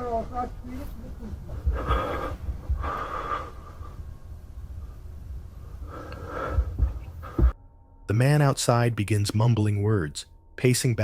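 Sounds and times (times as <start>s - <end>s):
breathy muffled vocal sounds: 1.5s - 4.0s.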